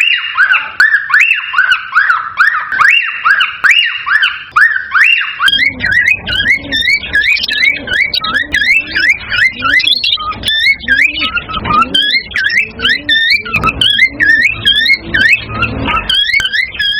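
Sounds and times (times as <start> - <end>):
cockatiels whistling: 0.0 - 16.9.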